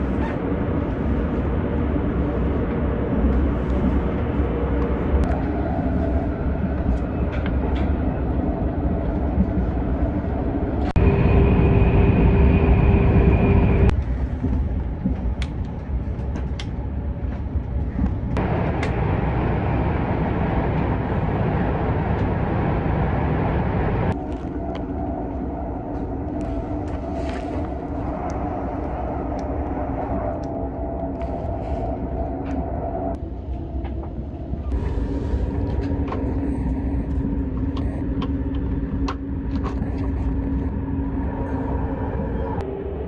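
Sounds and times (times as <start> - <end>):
steady whine: 0.0 - 15.2, 16.6 - 43.0
train cabin rumble and hiss: 13.8 - 24.8.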